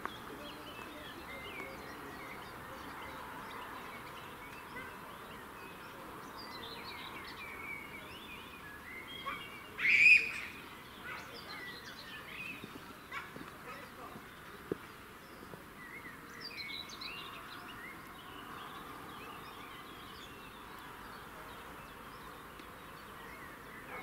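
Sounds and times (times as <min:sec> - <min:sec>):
birds chirping and singing: 0:00.0 - 0:24.0
loud bird call: 0:09.2 - 0:11.8.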